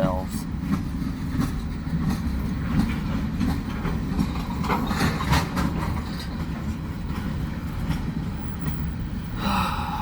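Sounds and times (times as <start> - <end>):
train wheels rumbling on rail: 0.0 - 10.0
clicks and clanks: 0.7 - 6.5.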